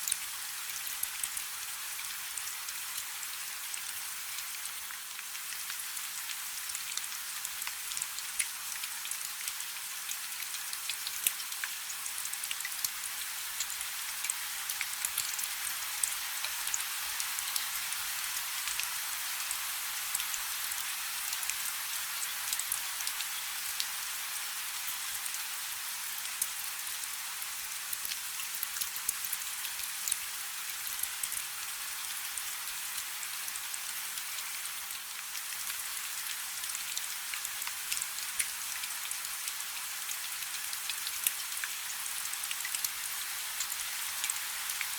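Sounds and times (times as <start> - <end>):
raindrops ticking on surface: 3.7 - 23.9, 26.2 - 44.9.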